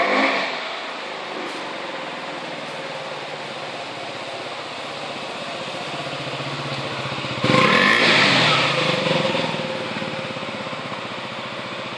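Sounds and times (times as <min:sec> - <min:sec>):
motorcycle engine revving: 0:03.0 - 0:11.9.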